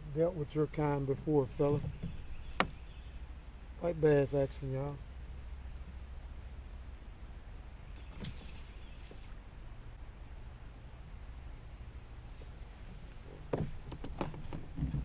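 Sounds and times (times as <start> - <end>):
faint handling knocks: 1.6 - 2.8.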